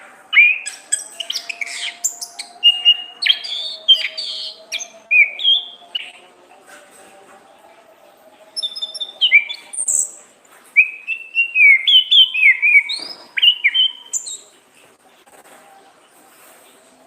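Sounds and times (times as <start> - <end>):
thrush singing whistled phrases: 0.3 - 6.2, 8.5 - 10.2, 10.8 - 14.4.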